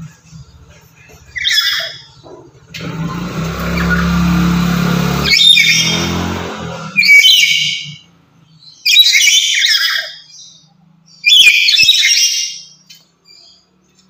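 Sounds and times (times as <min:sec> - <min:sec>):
parrot screeching: 0:01.4 - 0:02.2, 0:05.2 - 0:08.0, 0:08.8 - 0:10.4, 0:11.2 - 0:12.8.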